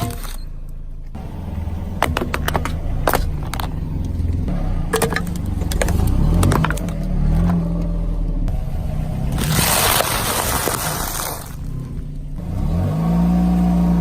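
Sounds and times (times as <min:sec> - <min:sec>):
vehicle engine running: 0:00.6 - 0:14.0
sharp crunching cracks: 0:08.5 - 0:12.0.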